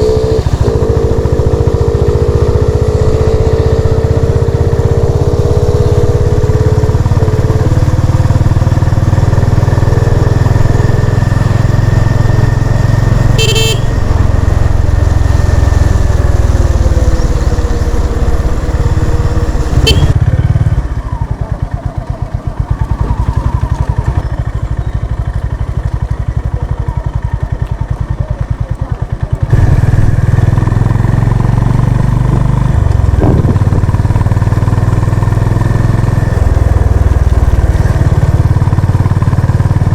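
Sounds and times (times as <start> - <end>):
motorcycle engine running: 0.0 - 39.9
horn beep: 12.0 - 16.0, 19.0 - 20.2.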